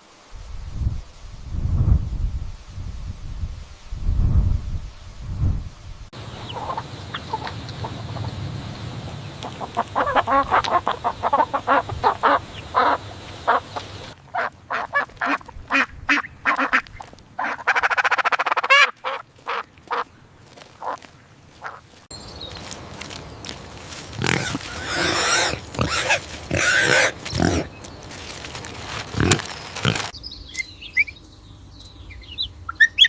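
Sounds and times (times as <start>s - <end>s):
waterfowl calling: 6.2s - 20.1s, 20.7s - 22.0s, 23.4s - 30.1s.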